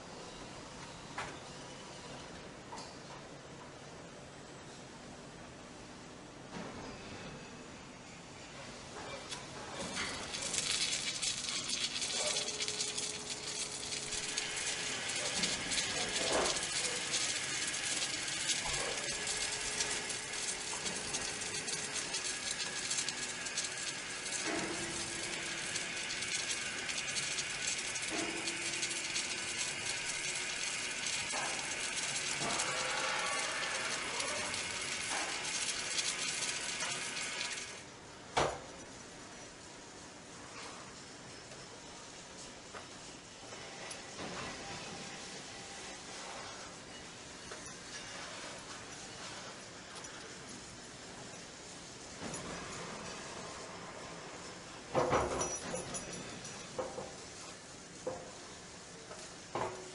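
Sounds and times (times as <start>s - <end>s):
metallic rattling and clinking: 9.8s - 36.6s, 54.9s - 57.9s.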